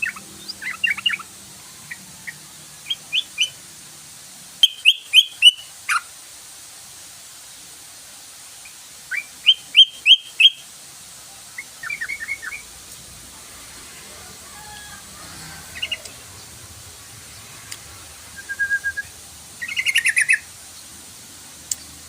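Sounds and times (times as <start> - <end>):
bird calling sharp notes: 9.1 - 10.7, 18.3 - 20.5.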